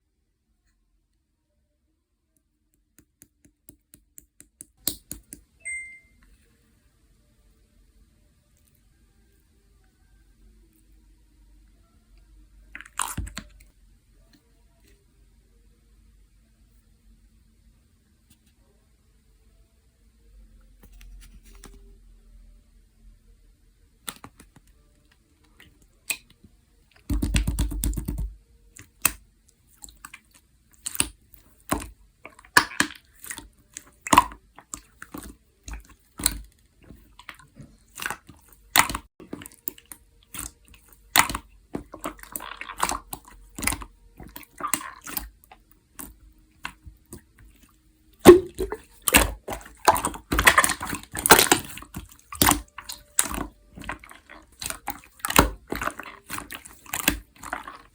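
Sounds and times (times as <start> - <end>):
slime squished by hand: 29.8 - 57.9.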